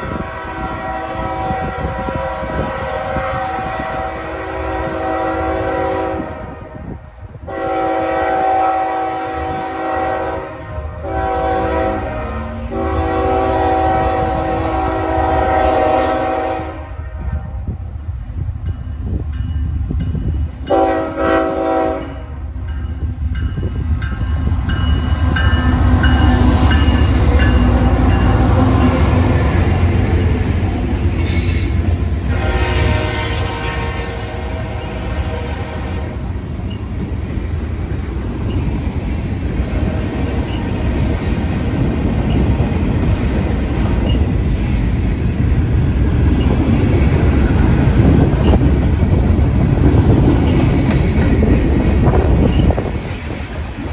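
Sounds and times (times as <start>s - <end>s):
locomotive horn blasts: 0.1s - 17.6s, 20.7s - 22.4s, 31.2s - 36.3s
locomotive rumble: 17.6s - 53.9s.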